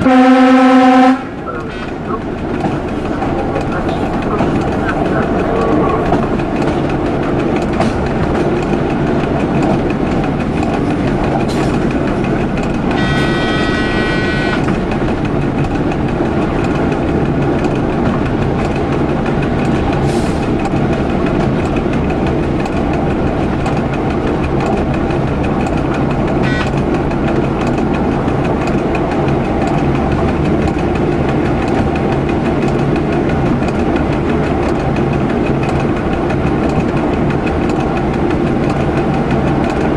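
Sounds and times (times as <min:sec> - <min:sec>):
train horn: 0:00.0 - 0:01.4, 0:12.9 - 0:14.8, 0:26.4 - 0:26.8
train engine and rail noise: 0:00.0 - 0:39.9.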